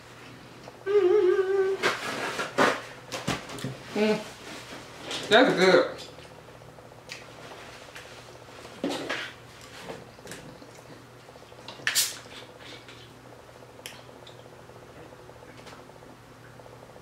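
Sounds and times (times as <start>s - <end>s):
person chewing wetly: 9.6s - 13.2s.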